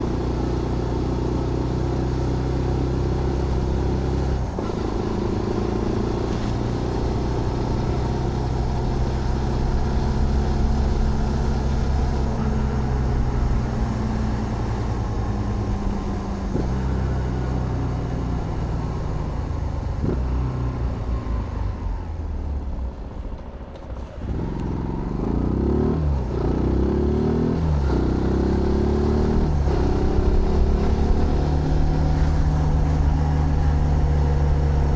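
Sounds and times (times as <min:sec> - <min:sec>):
motorcycle engine shifting gears: 0:00.0 - 0:34.9.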